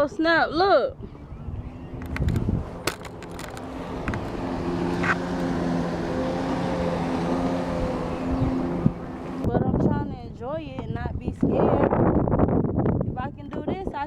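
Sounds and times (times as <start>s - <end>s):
engine droning: 0.0s - 11.1s.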